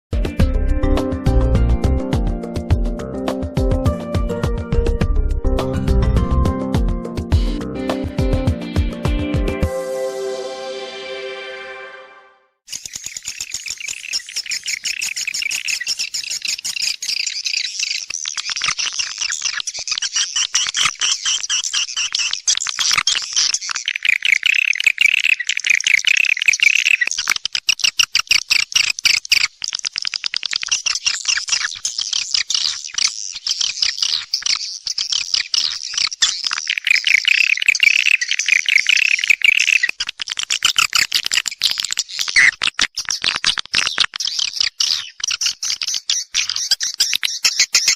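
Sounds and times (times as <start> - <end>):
swiftlets twittering: 35.9 - 39.9.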